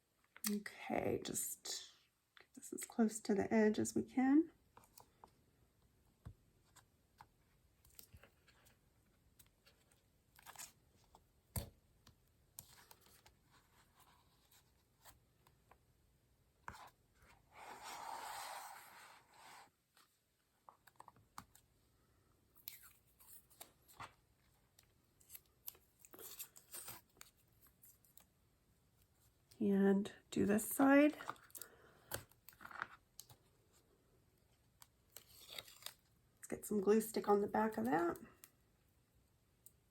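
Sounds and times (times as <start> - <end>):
tape rustling on paper: 22.5 - 28.3, 34.5 - 36.2.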